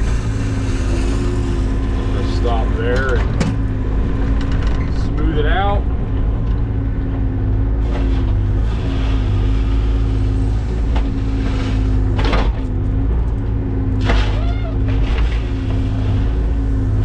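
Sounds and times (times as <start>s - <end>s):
equipment engine running steadily: 0.0s - 17.0s.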